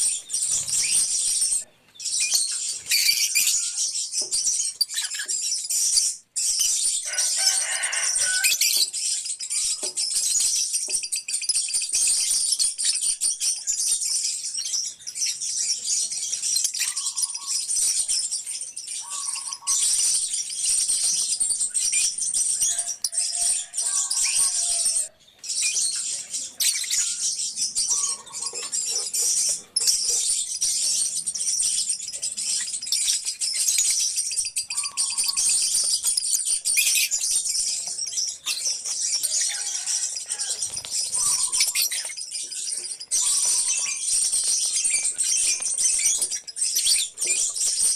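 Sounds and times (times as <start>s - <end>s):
lovebirds chirping and chattering: 0.0s - 47.9s
lower bird squawks: 34.7s - 35.6s.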